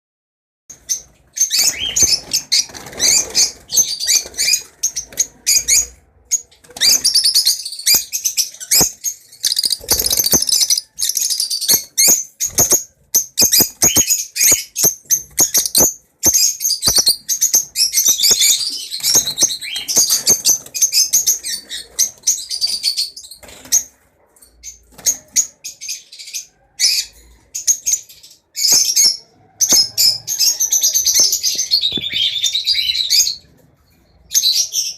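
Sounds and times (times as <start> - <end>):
lovebirds chirping and chattering: 0.7 - 34.9.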